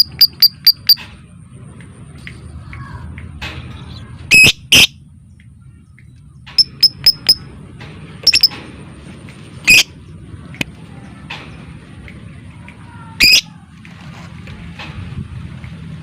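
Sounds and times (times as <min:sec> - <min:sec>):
lovebird screeching and chirping: 0:04.3 - 0:04.9, 0:08.2 - 0:08.5, 0:09.6 - 0:10.0, 0:13.2 - 0:13.5.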